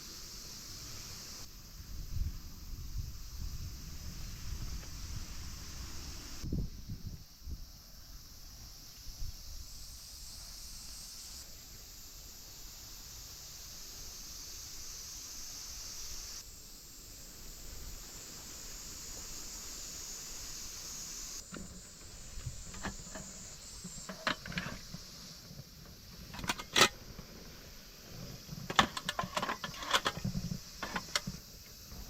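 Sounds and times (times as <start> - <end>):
high hiss of outdoor ambience: 0.0 - 32.0
clinks and knocks of camp gear: 21.4 - 27.4, 28.1 - 31.6.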